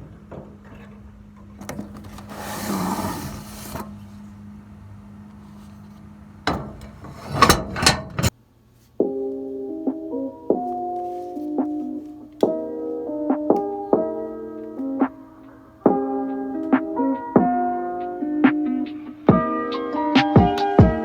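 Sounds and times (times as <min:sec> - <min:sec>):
sharp knocks and scrapes: 0:00.0 - 0:04.3, 0:05.4 - 0:08.3
keyboard music: 0:09.0 - 0:21.0.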